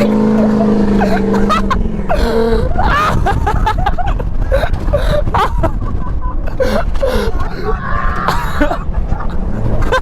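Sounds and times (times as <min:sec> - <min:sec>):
small motorbike engine running: 0:00.0 - 0:05.6
loud rough rumble: 0:00.0 - 0:10.0.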